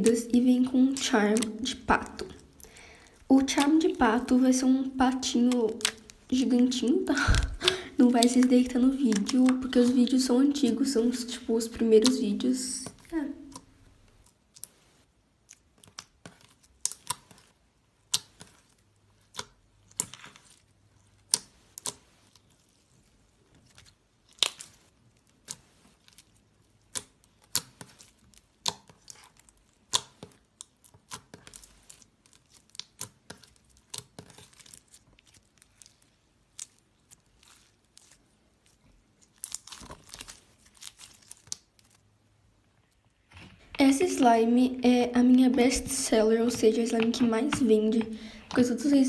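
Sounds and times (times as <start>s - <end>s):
slime squished by hand: 0.1s - 42.1s.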